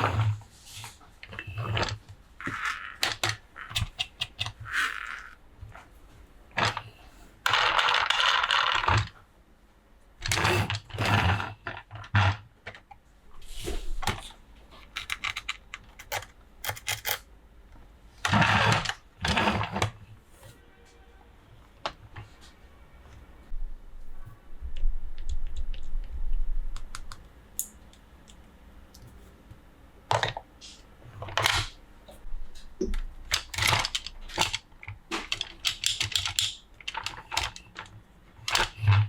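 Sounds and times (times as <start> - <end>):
plastic parts clicking: 1.2 - 5.4, 14.0 - 17.3, 32.9 - 39.0.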